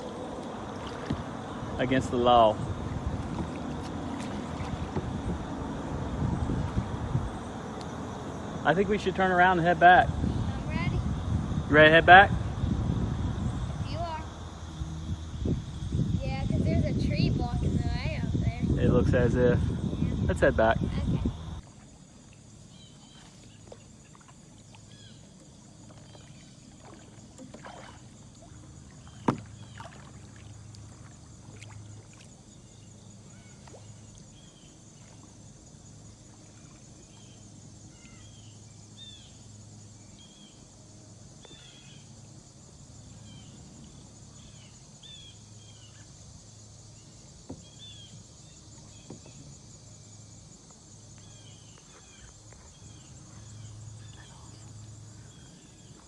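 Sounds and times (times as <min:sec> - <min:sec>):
paddle dipping into water: 0:00.0 - 0:09.2, 0:21.4 - 0:38.3, 0:47.3 - 0:49.6, 0:50.3 - 0:56.0
water dripping off paddle: 0:00.3 - 0:01.8, 0:23.1 - 0:32.4.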